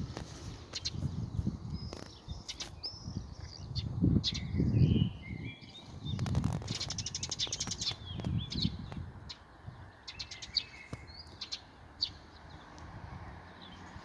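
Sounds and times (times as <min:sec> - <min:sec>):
songbirds chirping: 0:00.0 - 0:14.0
bird trill: 0:01.8 - 0:09.4.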